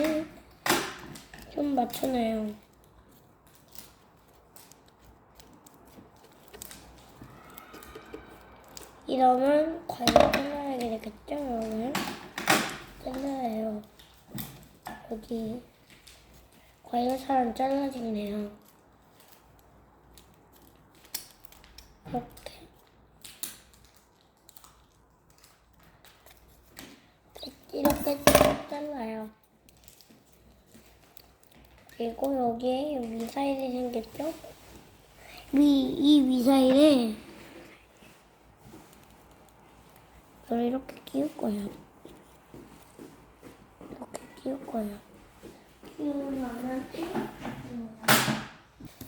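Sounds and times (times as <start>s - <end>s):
scissors snipping paper: 18.5s - 22.5s.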